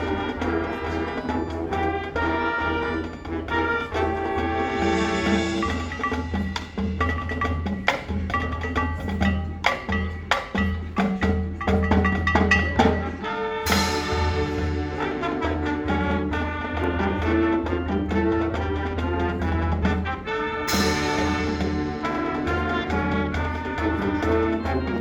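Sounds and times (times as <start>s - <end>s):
brass section chords: 0.0s - 6.1s, 13.0s - 25.0s
percussion strikes: 0.0s - 25.0s.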